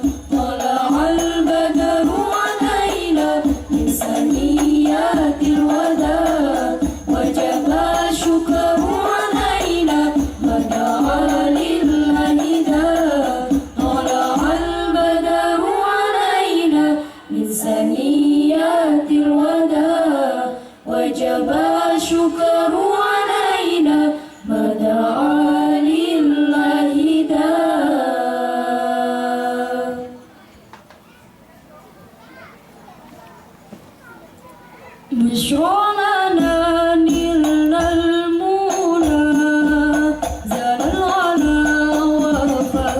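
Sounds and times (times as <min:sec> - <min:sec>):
frame drums: 0:00.0 - 0:15.3, 0:36.4 - 0:42.9
group singing together: 0:00.0 - 0:30.3, 0:35.1 - 0:42.9.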